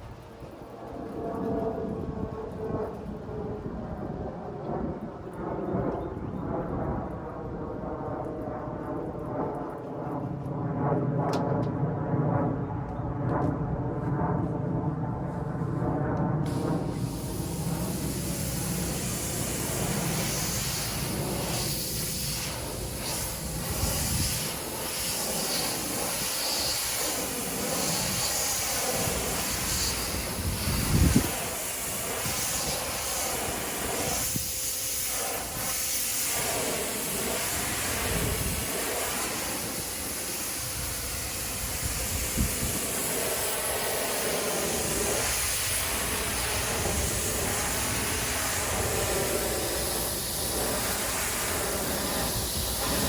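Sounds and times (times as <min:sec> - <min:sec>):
pressure washer spraying water: 0:16.5 - 0:53.0.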